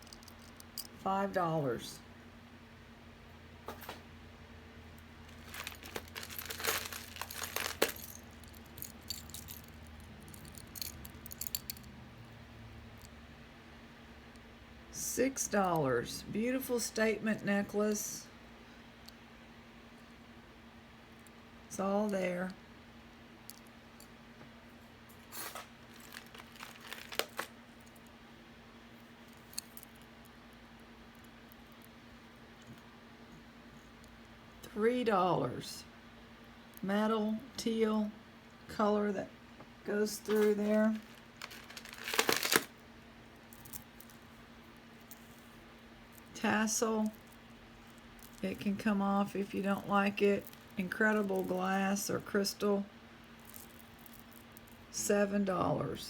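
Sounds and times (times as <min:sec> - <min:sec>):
jewelry clicking and clinking: 0:00.0 - 0:01.0, 0:05.2 - 0:12.0, 0:25.9 - 0:28.1, 0:29.3 - 0:30.1, 0:40.2 - 0:42.7, 0:43.5 - 0:46.4, 0:47.0 - 0:48.8, 0:49.5 - 0:51.7, 0:53.4 - 0:54.8
steady low hum: 0:00.0 - 0:56.0
rustling: 0:05.3 - 0:09.7, 0:25.4 - 0:27.5, 0:40.2 - 0:42.8.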